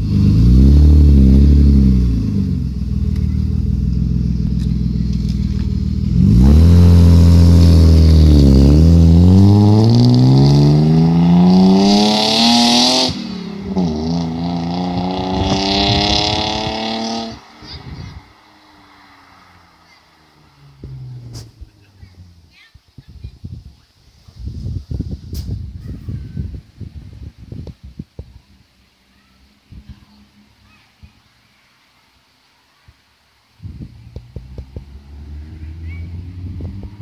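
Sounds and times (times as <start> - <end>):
car engine revving loudly: 0.0 - 21.7, 34.3 - 37.0.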